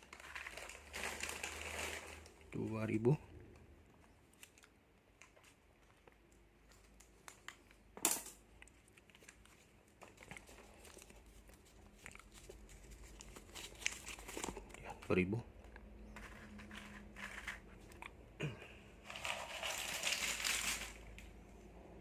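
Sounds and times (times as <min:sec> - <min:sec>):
plastic packets crinkling: 0:00.0 - 0:03.1, 0:08.7 - 0:15.0, 0:19.0 - 0:21.3.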